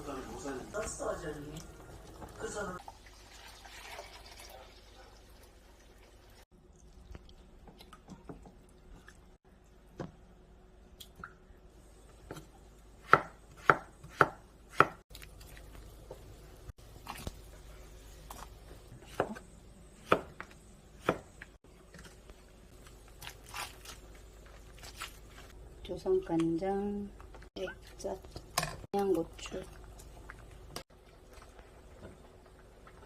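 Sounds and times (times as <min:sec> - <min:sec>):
knife chopping on cutting board: 0:12.3 - 0:15.0, 0:20.0 - 0:21.3.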